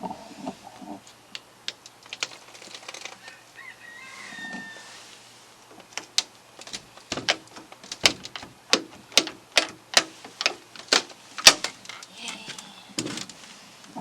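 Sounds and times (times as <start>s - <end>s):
sharp knocks or crunches: 5.8s - 13.4s.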